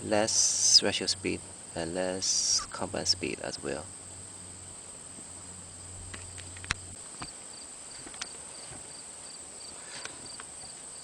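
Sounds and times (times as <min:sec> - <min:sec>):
low hum: 0:00.0 - 0:07.1
insects chirping: 0:00.0 - 0:11.0.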